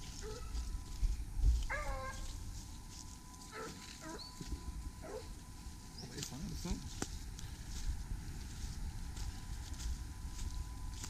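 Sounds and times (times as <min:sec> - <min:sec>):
hunting dogs baying: 0:00.0 - 0:00.8, 0:01.6 - 0:02.5, 0:03.4 - 0:05.6.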